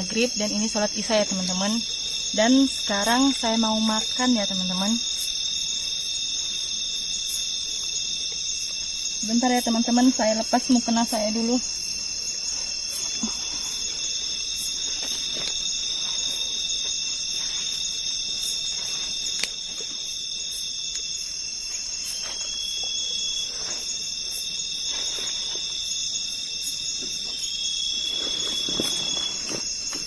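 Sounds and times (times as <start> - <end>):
night insects trilling: 0.0 - 30.0
faint rustling and handling: 12.1 - 20.1, 21.7 - 26.0, 27.9 - 30.0.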